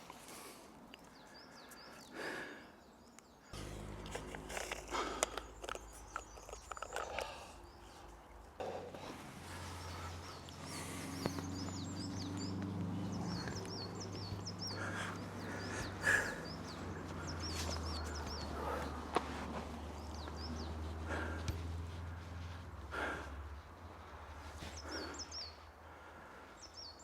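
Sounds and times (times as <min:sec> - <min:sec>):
songbird singing: 0:00.0 - 0:27.0
low drone: 0:03.5 - 0:25.0
rustling: 0:03.6 - 0:22.9.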